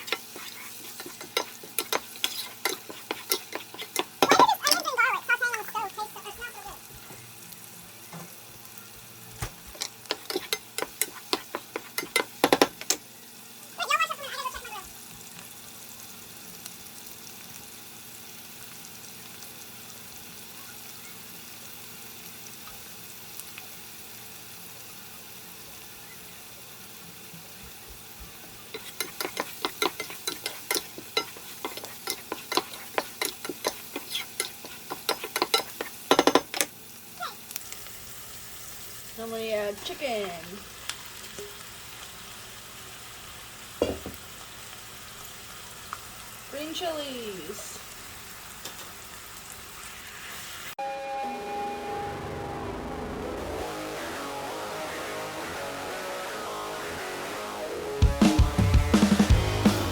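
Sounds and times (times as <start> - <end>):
utensil scraping a pan: 0.0 - 4.8, 9.7 - 13.0, 28.7 - 36.7
onions sizzling in a skillet: 0.0 - 50.8
short falling tone: 50.8 - 53.7.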